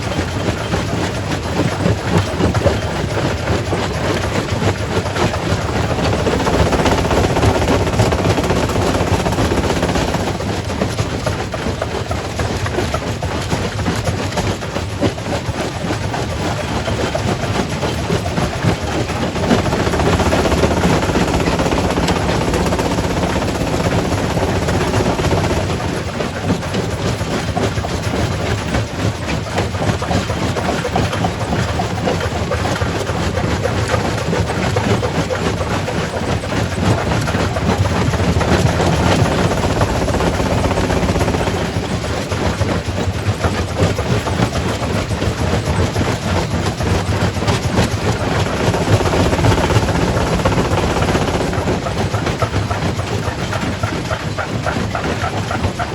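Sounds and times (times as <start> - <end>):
heavy machine hum: 5.4 - 11.2, 18.5 - 26.5, 37.9 - 42.6, 47.9 - 54.1.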